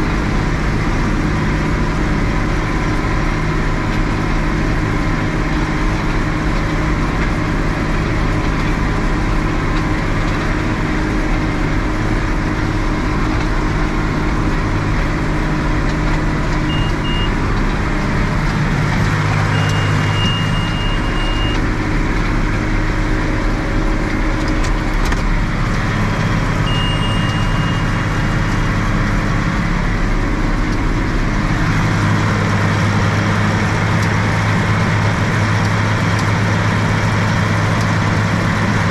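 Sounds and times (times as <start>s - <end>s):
tractor engine running: 0.0s - 38.9s
high electronic beeps: 16.7s - 17.4s, 19.4s - 21.7s, 26.6s - 28.5s.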